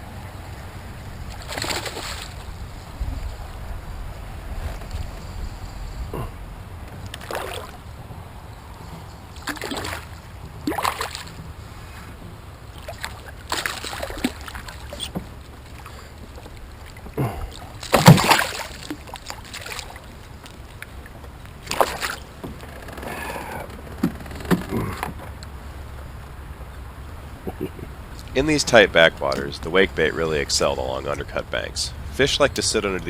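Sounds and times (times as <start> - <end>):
paddle strokes splashing in water: 1.1 - 3.4, 7.0 - 8.3, 8.9 - 26.2.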